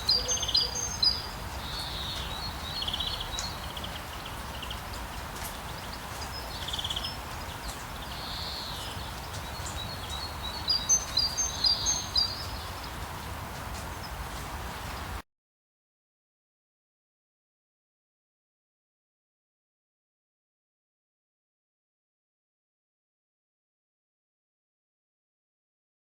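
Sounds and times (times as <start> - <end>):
birds calling: 0.0 - 15.2
rain hissing in a forest: 0.0 - 15.2
high bird chirps: 8.1 - 12.6.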